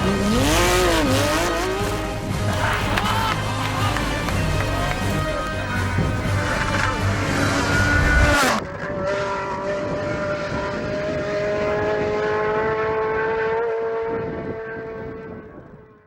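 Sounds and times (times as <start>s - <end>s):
rally car engine at high revs: 0.0s - 15.8s.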